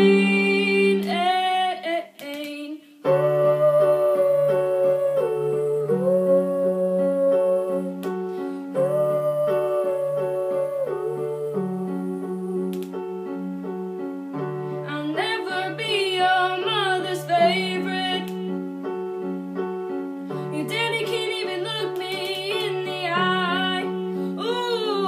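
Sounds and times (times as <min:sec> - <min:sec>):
person singing: 0:00.0 - 0:13.3, 0:14.8 - 0:18.6, 0:20.3 - 0:25.0
electronic keyboard playing: 0:03.1 - 0:25.0.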